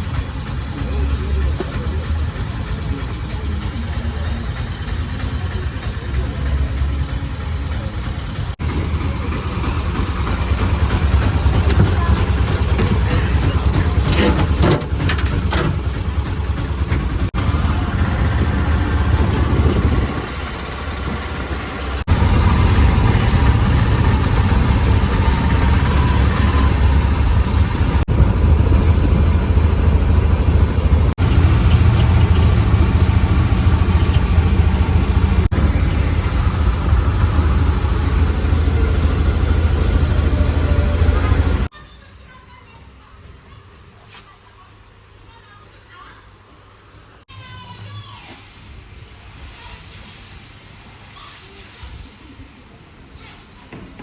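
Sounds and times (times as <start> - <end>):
vehicle engine and road noise: 0.0 - 42.5.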